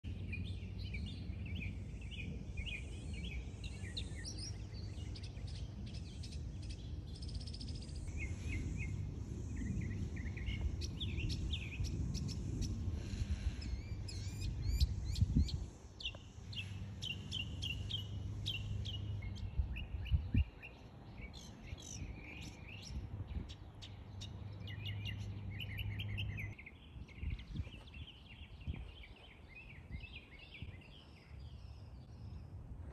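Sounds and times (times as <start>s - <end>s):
small birds chirping: 0.0s - 32.9s
low rumble: 0.1s - 15.8s.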